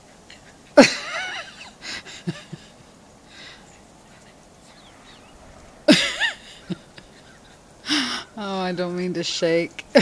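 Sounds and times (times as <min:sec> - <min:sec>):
breathy puffs of air: 0:03.2 - 0:06.8, 0:07.7 - 0:08.4.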